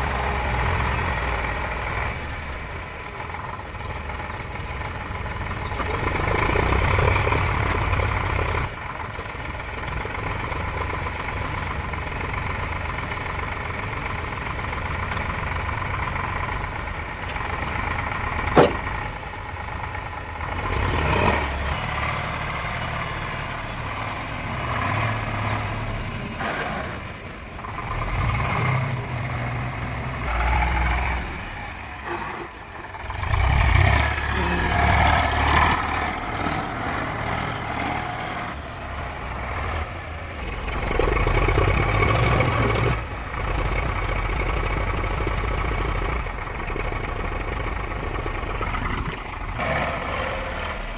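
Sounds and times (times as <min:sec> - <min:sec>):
vehicle engine idling: 0:00.0 - 0:50.9
sharp click: 0:18.6 - 0:19.0.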